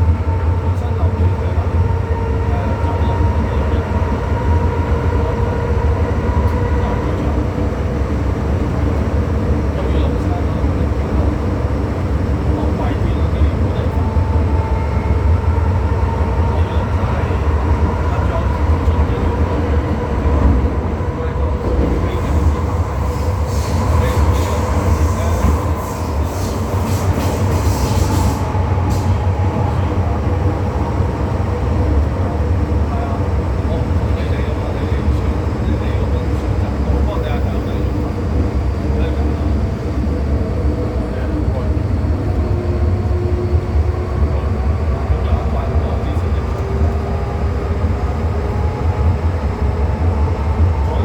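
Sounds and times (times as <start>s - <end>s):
train wheels rumbling: 0.0s - 51.0s.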